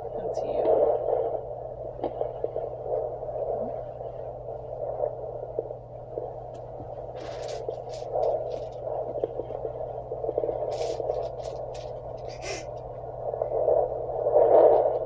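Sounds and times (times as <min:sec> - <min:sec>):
doppler speaker whooshing static: 0:00.0 - 0:15.0
scratchy crackles: 0:04.8 - 0:15.0.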